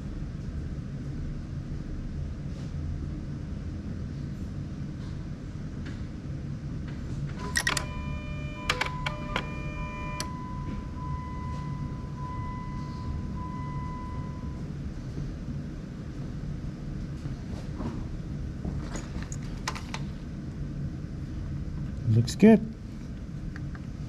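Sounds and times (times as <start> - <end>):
low engine rumble: 0.0 - 24.0
electronic warning chime: 7.4 - 14.7.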